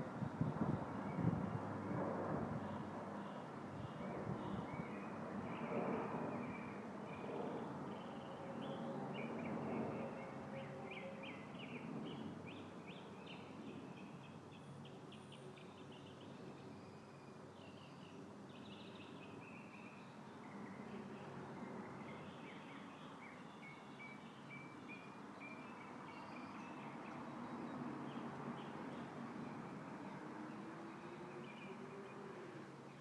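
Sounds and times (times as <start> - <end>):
wind rustling leaves: 0.0 - 7.0.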